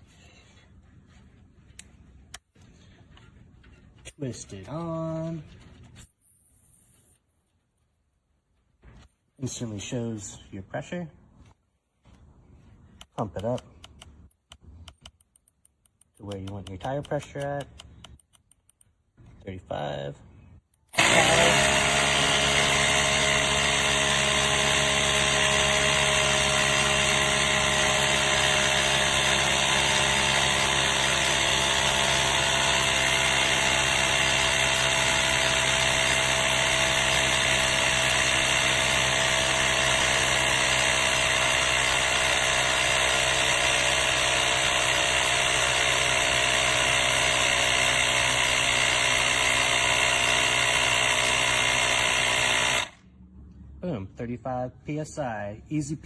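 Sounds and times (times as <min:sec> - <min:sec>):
tire inflator compressor whining: 0:20.8 - 0:53.1.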